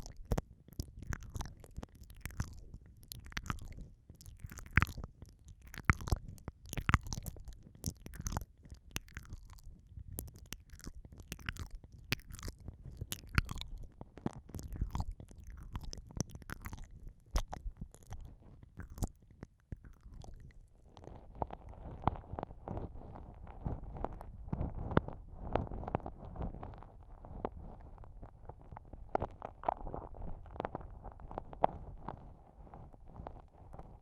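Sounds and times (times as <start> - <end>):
wet lip smacks and tongue clicks: 0.0 - 22.2
soft steady rustle: 0.0 - 34.0.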